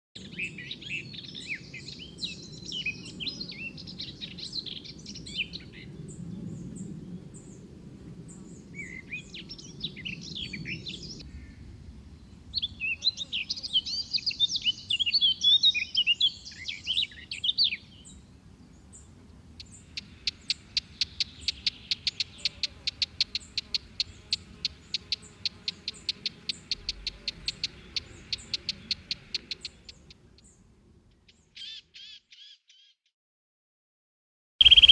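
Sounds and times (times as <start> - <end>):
songbirds chirping and warbling: 0.2 - 33.0, 34.6 - 34.9
bird sharp repeated notes: 34.6 - 34.9.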